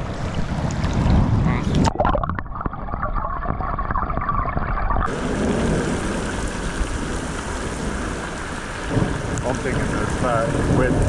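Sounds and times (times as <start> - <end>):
river water rushing: 5.1 - 11.0.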